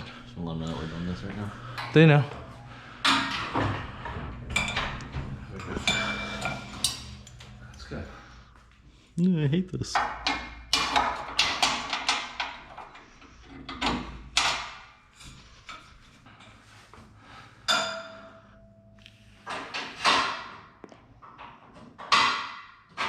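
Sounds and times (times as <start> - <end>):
metal scaffolding clanking: 1.7 - 7.8, 17.6 - 18.6
metallic ring: 4.6 - 7.7, 17.7 - 19.0.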